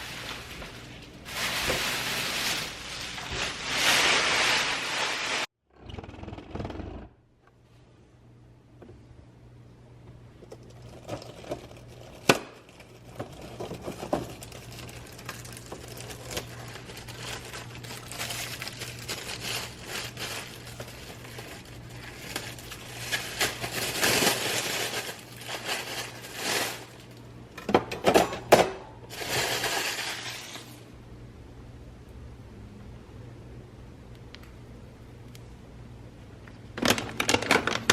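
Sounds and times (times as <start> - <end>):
rustling and crinkling: 0.0 - 5.5, 10.5 - 27.2.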